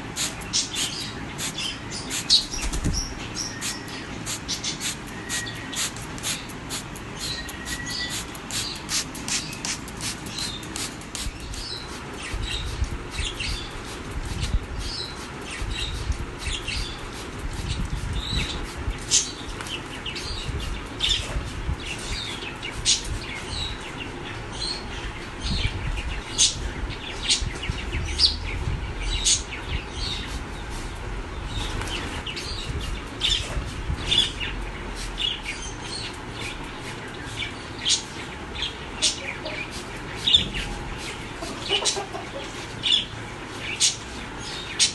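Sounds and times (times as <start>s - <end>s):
wing flapping: 0.2s - 3.8s
parrot chirping and calling: 0.2s - 13.8s, 37.5s - 43.1s.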